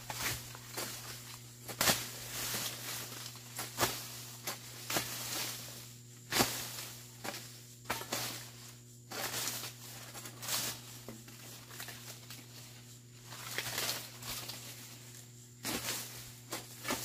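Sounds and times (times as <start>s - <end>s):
hoe scraping soil: 9.1s - 12.6s, 15.6s - 17.0s.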